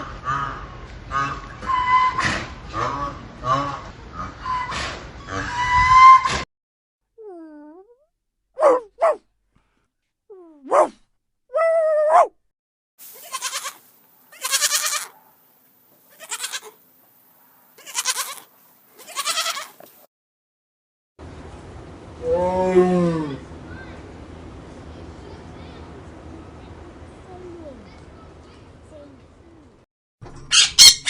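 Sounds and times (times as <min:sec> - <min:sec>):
goats bleating: 0:13.1 - 0:15.2, 0:16.1 - 0:16.8, 0:17.8 - 0:19.8.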